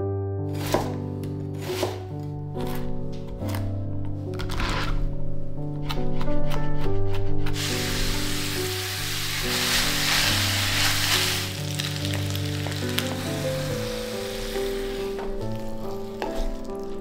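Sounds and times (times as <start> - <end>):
knife chopping on plastic board: 0.6 - 2.9
wooden spatula stirring: 7.0 - 17.0
meat and vegetables sizzling in skillet: 7.6 - 16.2.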